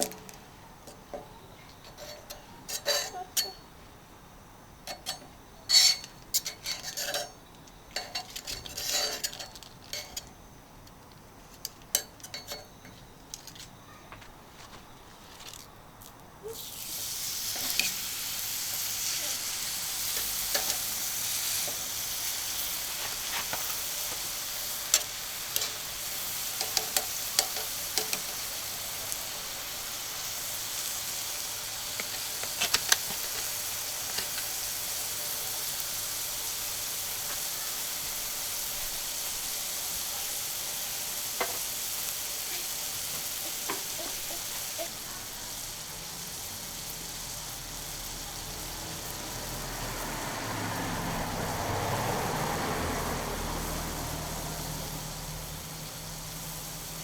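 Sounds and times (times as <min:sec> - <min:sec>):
steak sizzling on a griddle: 0:16.5 - 0:57.0.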